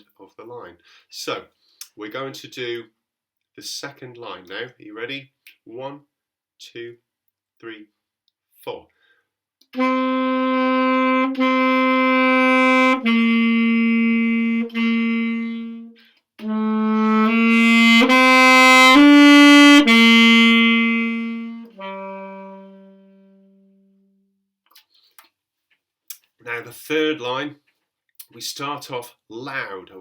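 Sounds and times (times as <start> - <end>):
saxophone slow melody: 9.7 - 24.2.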